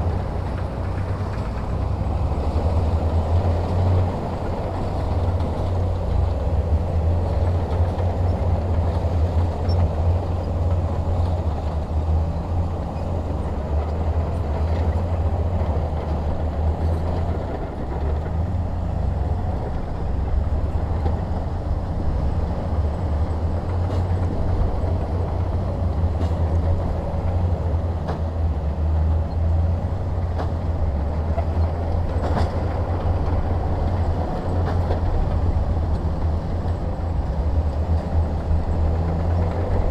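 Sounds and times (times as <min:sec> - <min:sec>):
heavy diesel engine rumbling: 0:00.0 - 0:39.9.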